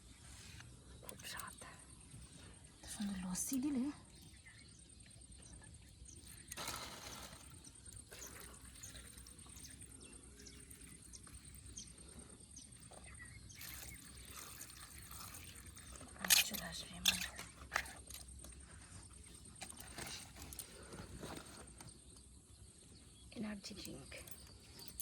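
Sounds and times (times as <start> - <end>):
small ticks: 0.6 - 6.6
liquid pouring into bait mix: 6.2 - 12.0, 12.7 - 16.6.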